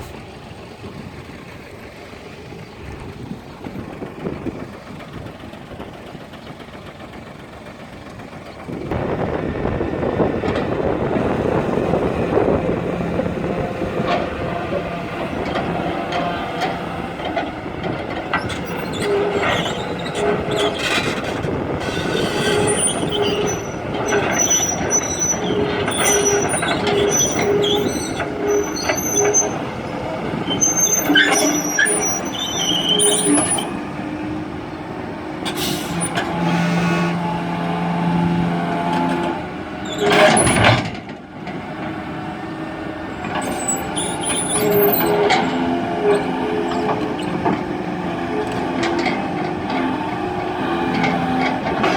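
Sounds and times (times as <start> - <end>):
heavy machinery running: 0.0 - 51.9
metallic squeaks and clanks: 10.6 - 34.4, 35.4 - 41.6, 43.1 - 51.9.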